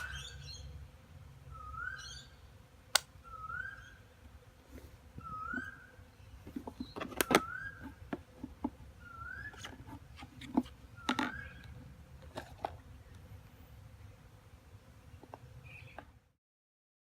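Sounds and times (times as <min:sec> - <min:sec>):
packaging clicks and taps: 0:06.5 - 0:08.8.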